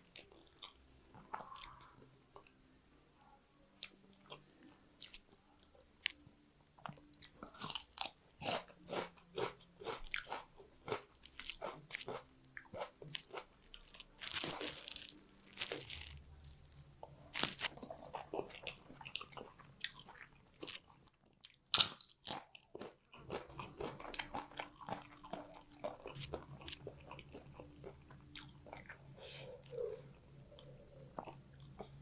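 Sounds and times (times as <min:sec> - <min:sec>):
chewing and wet mouth sounds: 0:00.0 - 0:02.6, 0:03.7 - 0:05.3, 0:06.8 - 0:32.0
faint steady hum: 0:00.0 - 0:21.3, 0:23.1 - 0:32.0
crunchy bites: 0:14.2 - 0:18.3, 0:21.4 - 0:26.8.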